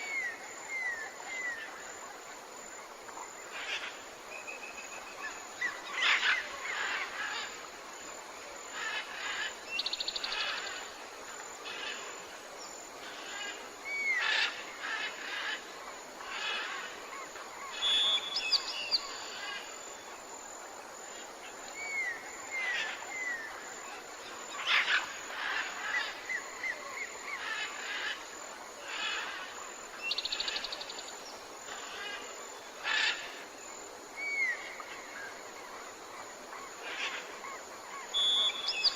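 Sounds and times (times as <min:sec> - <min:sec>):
soft hiss: 0:00.0 - 0:38.9
forest birds calling: 0:08.7 - 0:20.2, 0:21.1 - 0:38.9.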